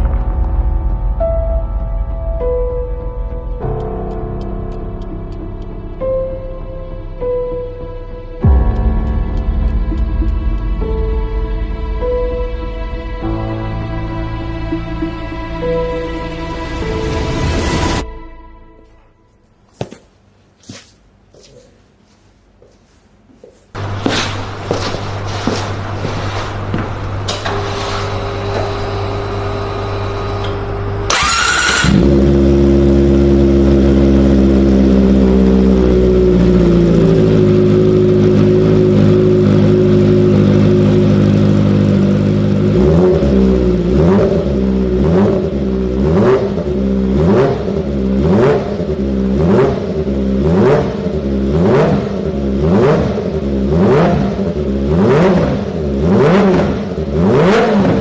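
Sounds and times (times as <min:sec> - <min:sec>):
motorcycle engine idling and revving: 0:02.8 - 0:07.2, 0:23.8 - 0:58.0.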